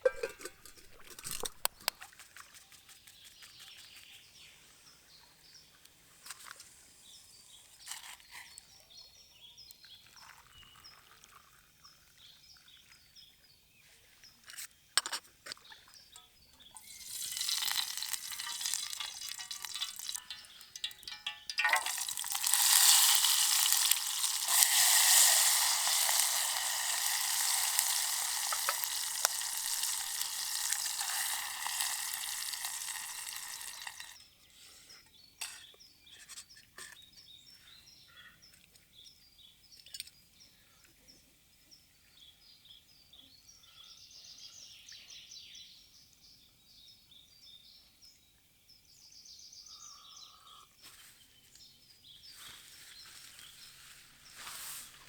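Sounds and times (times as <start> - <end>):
bird chirps: 2.6 - 5.8, 25.8 - 50.7
food sizzling in a pan: 16.8 - 34.2.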